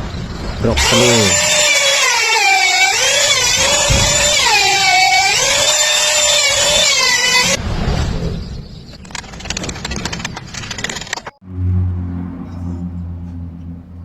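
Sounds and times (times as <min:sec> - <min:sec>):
power tool motor whining: 0:00.8 - 0:07.6.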